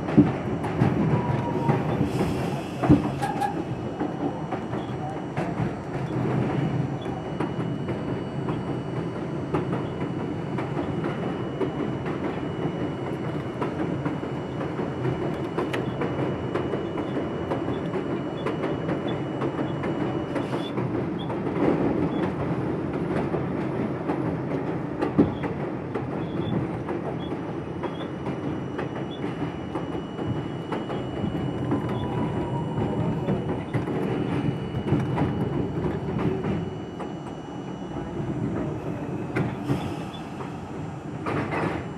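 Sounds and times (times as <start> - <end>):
rail-joint clicks: 0.0 - 8.6, 32.9 - 41.9
train wheels rumbling on rail: 0.0 - 41.9.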